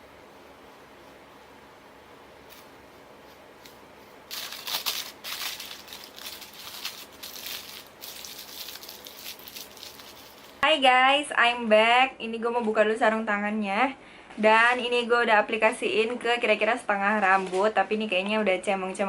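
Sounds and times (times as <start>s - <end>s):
aluminium foil crinkling: 3.6s - 10.6s.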